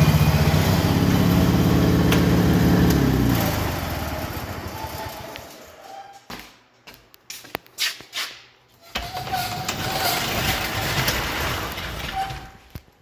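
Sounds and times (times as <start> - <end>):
riding lawn mower engine: 0.0 - 5.8.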